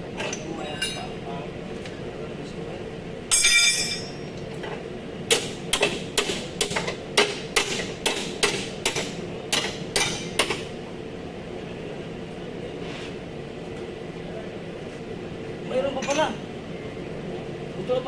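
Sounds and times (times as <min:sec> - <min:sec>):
hammer striking metal: 0:03.3 - 0:04.2, 0:05.3 - 0:10.6
ringing metallic clink: 0:03.3 - 0:04.3.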